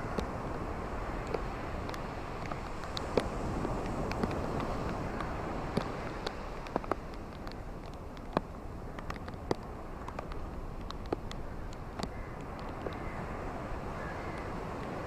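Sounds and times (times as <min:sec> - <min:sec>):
ocean waves washing on beach: 0:00.0 - 0:15.0
sharp clicks and crackles: 0:01.2 - 0:13.1.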